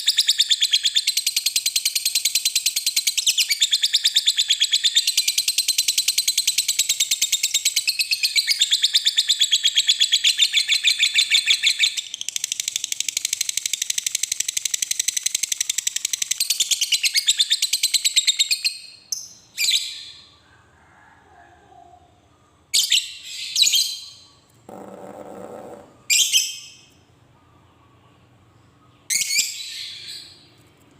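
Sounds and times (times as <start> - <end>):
lovebird chattering: 24.7 - 26.8.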